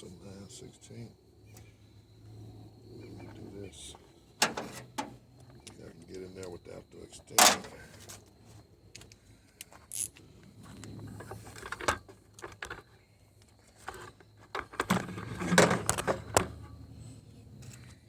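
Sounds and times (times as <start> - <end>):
metal hand tools clicking and knocking: 7.4 - 7.8.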